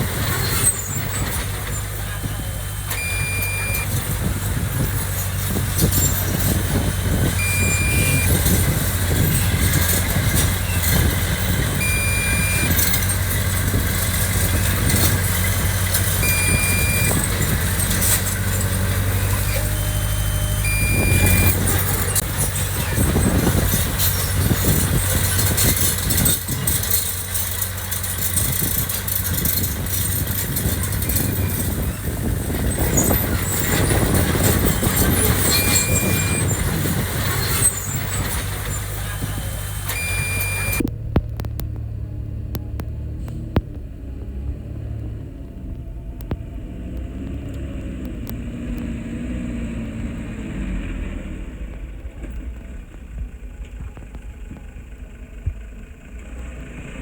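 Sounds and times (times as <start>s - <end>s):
heavy diesel machinery running: 0.0s - 57.0s
short high beeps: 2.9s - 4.0s, 7.4s - 8.6s, 11.8s - 13.0s, 16.2s - 17.3s, 19.5s - 21.8s, 35.4s - 36.6s, 39.9s - 40.8s.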